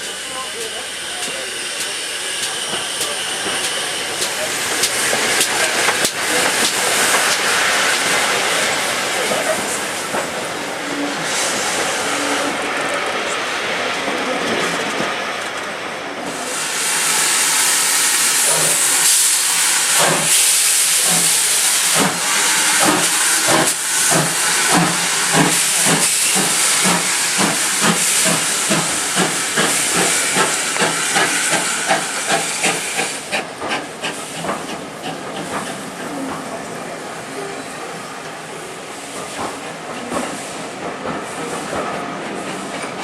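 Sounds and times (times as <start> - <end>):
steam locomotive exhaust beat: 0.0 - 12.7, 16.3 - 36.9
steam hissing: 0.0 - 15.4, 16.2 - 43.0.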